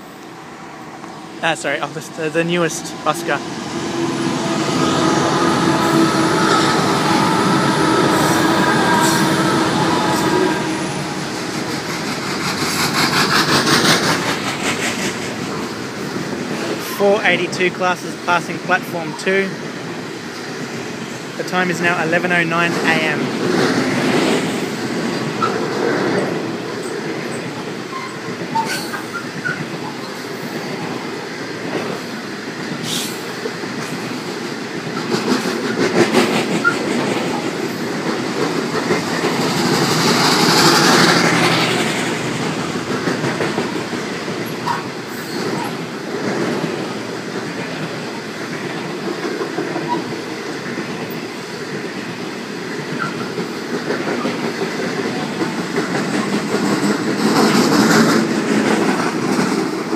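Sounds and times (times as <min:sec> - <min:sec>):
freight train rolling past: 0:00.0 - 0:59.9.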